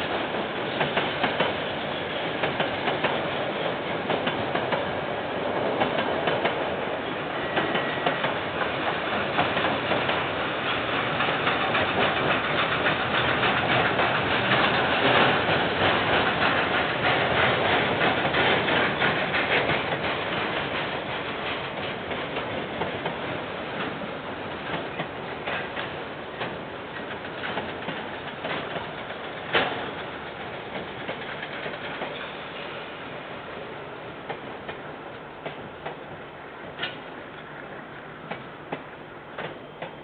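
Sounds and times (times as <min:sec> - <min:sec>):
rumble of wheels on track: 0:00.0 - 0:40.0
wheels clicking over rail joints: 0:07.4 - 0:32.6, 0:36.6 - 0:37.6.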